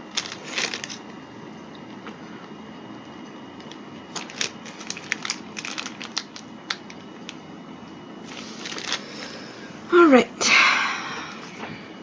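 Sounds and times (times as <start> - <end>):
plastic packaging crinkling: 0.0 - 1.1, 3.6 - 7.4, 8.2 - 9.4.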